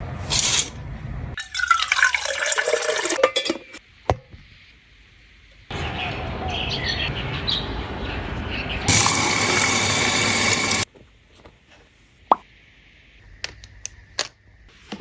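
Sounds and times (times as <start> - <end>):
liquid pouring: 1.4 - 3.2.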